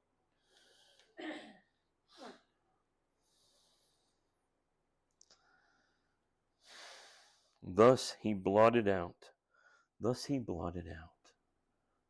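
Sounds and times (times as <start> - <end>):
person breathing: 0.3 - 1.2, 3.2 - 4.3, 5.3 - 7.6, 9.5 - 10.0.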